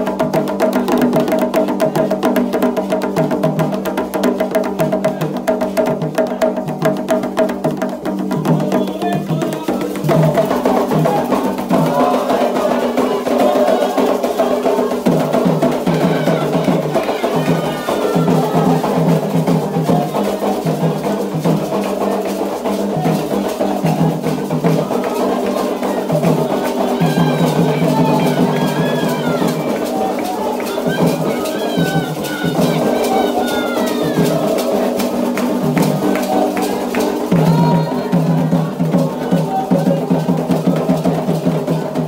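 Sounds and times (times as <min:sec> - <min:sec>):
hand drums: 0:00.0 - 0:42.0
voices singing a chant: 0:00.0 - 0:42.0.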